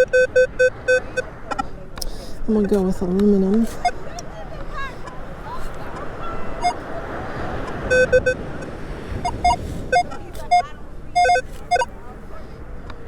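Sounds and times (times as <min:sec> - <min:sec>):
metal detector beeping: 0:00.0 - 0:01.7, 0:02.6 - 0:04.0, 0:06.6 - 0:06.8, 0:07.7 - 0:12.0
steady rushing background noise: 0:00.0 - 0:12.9.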